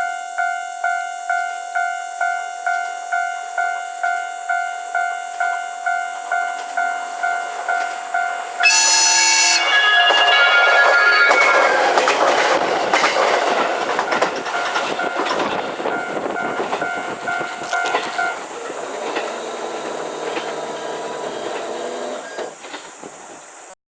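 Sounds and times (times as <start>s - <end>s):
level crossing warning bell: 0.0s - 22.5s
train wheels clattering over rail joints: 9.6s - 23.7s.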